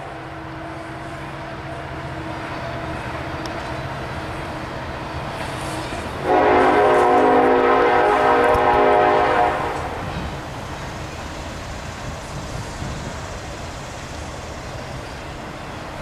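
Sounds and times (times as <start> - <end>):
passing train rumble: 0.0 - 16.0
locomotive air horn: 5.6 - 10.3.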